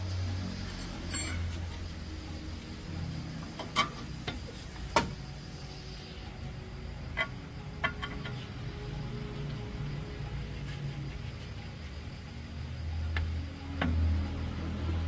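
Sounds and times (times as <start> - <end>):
low steady hum: 0.0 - 15.0
hand tools clinking on metal: 0.7 - 1.7.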